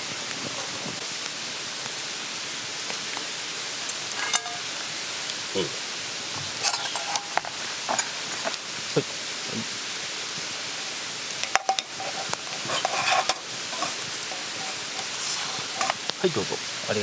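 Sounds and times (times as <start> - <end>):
mountain stream rushing: 0.0 - 17.0
cookware clinking and scraping: 3.9 - 4.8, 6.4 - 8.6, 11.4 - 16.1.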